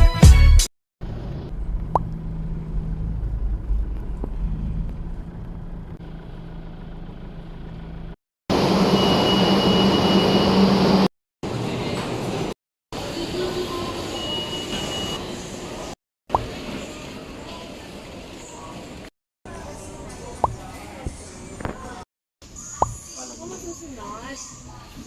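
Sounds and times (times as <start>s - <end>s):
road rumble: 1.0s - 8.9s
vehicle engine hum: 1.0s - 11.1s.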